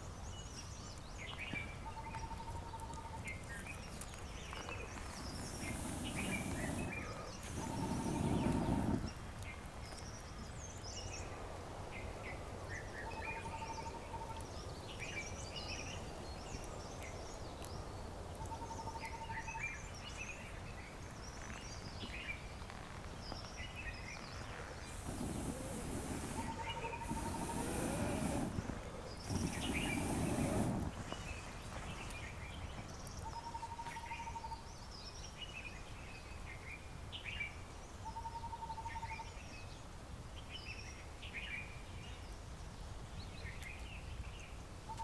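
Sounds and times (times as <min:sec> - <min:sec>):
birds chirping: 0:03.4 - 0:09.2, 0:24.2 - 0:32.9.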